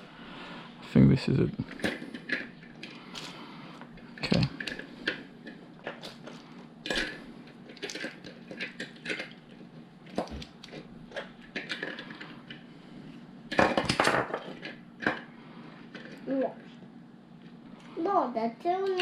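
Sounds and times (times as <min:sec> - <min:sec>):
plastic pieces clicking and clattering: 0:04.2 - 0:12.3.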